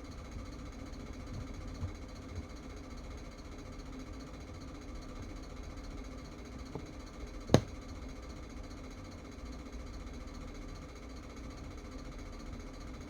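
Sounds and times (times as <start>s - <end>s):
faint tap: 7.5s - 7.7s.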